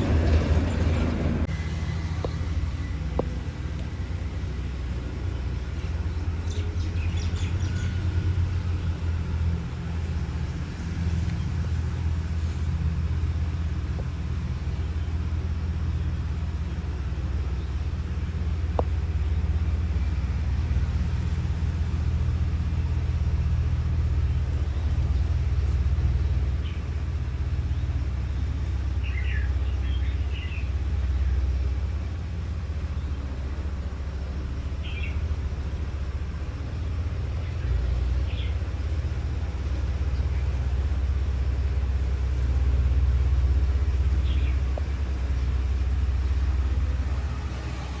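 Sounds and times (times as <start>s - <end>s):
steady low rumble: 0.0s - 48.0s
small birds chirping: 5.0s - 12.6s, 27.7s - 31.8s, 34.2s - 47.3s.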